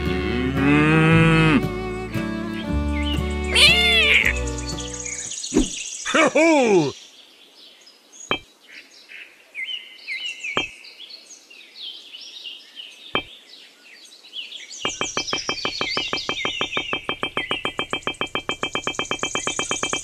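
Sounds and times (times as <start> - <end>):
birds chirping: 0.0 - 20.0
fast synthesizer pulse: 14.9 - 20.0.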